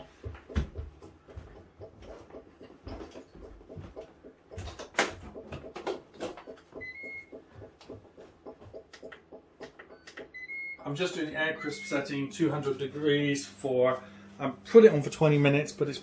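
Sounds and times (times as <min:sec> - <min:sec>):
short electronic beep: 0:11.6 - 0:12.1.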